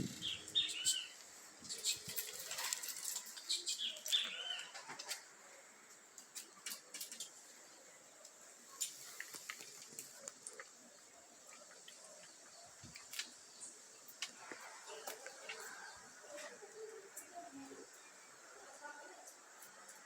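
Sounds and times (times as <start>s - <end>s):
faint high bird chirps: 0.0s - 5.2s.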